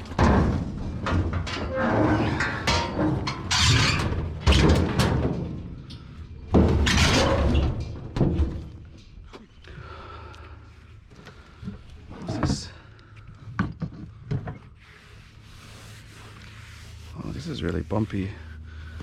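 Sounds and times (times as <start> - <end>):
junk thudding and clattering: 0.0 - 9.5.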